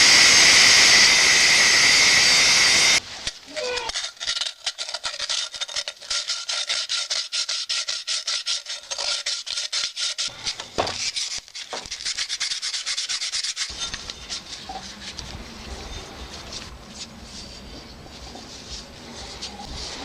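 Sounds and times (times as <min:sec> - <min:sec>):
hand rubbing a kettle: 0:05.2 - 0:20.0.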